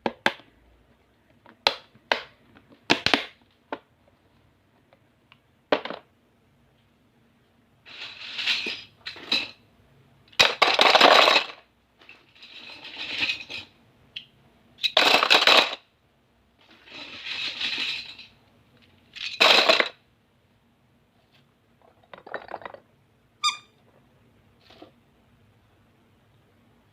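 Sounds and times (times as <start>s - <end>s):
plastic items clattering: 10.4s - 13.7s, 14.8s - 15.9s, 19.1s - 20.0s, 21.8s - 22.9s.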